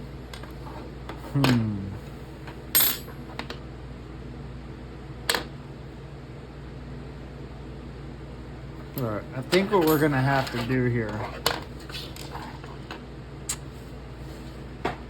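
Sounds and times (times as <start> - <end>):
small metal parts clinking: 2.8 - 3.2, 8.9 - 10.8.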